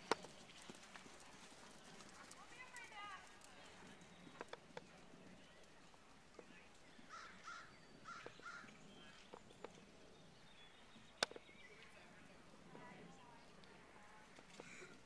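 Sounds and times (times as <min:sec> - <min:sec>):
faint harsh bird calls: 0:07.0 - 0:09.5
sharp clicks: 0:11.2 - 0:11.5.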